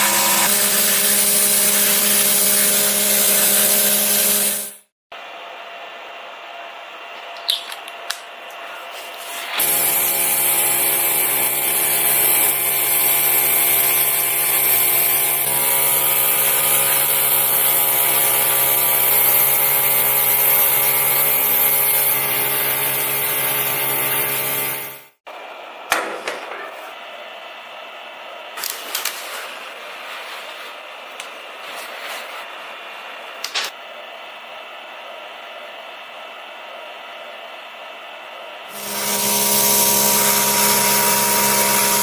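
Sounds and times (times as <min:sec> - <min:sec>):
small motor tool hissing: 0:09.1 - 0:25.1, 0:38.7 - 0:42.0.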